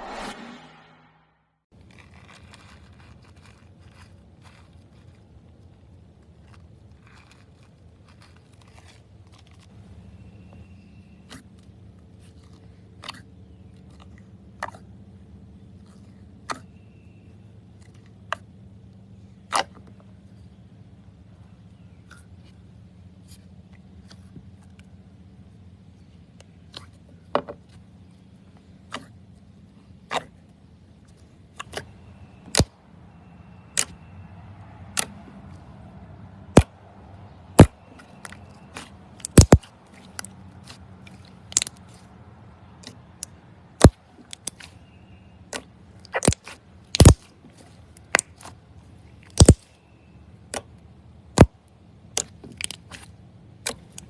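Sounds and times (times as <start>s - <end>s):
slime clicking and popping: 39.2s - 39.7s, 46.1s - 47.3s, 49.3s - 49.6s.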